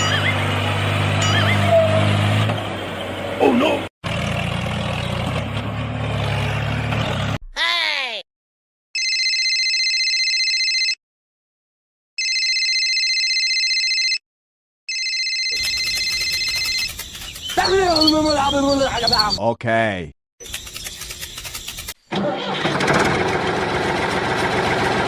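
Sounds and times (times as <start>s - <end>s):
electronic ringing tone: 9.0s - 11.0s, 12.2s - 14.2s, 14.9s - 17.0s.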